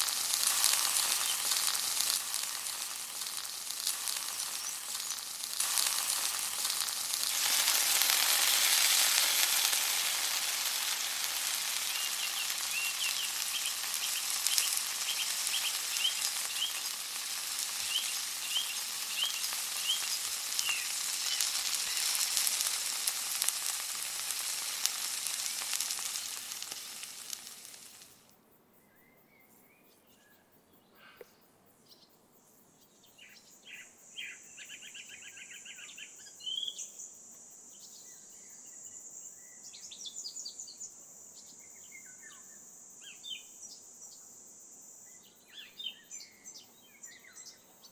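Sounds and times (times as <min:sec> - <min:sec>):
chicken frying in oil: 0:00.0 - 0:28.3
birds chirping faintly: 0:00.0 - 0:44.4.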